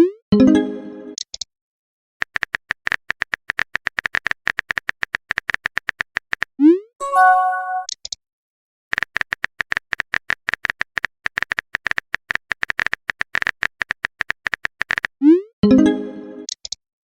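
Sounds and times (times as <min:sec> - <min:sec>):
chime-like message tone: 0:07.0 - 0:07.9.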